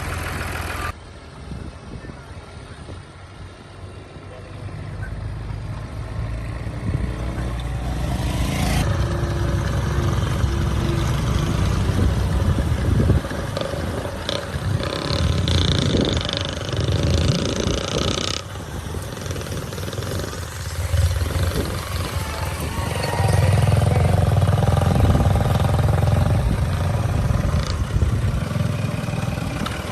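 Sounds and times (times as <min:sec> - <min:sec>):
tractor diesel engine running: 0:00.0 - 0:01.0, 0:08.8 - 0:29.9.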